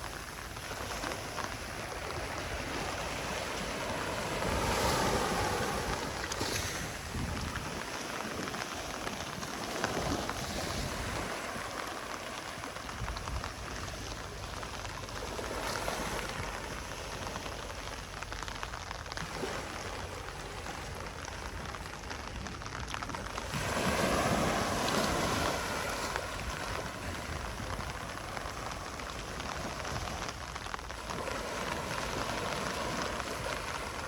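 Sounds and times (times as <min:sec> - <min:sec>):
ocean waves washing onto beach: 0:00.0 - 0:34.0.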